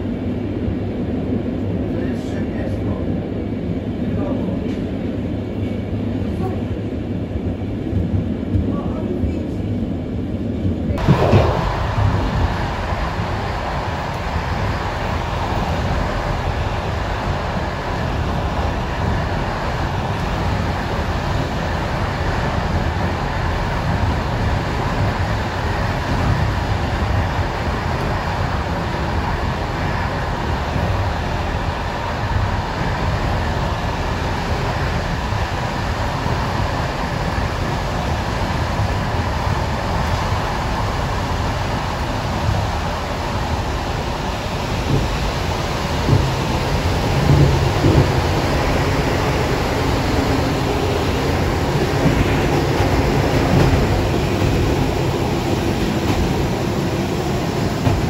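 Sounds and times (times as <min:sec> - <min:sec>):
moving train rumbling: 0:00.0 - 0:58.0.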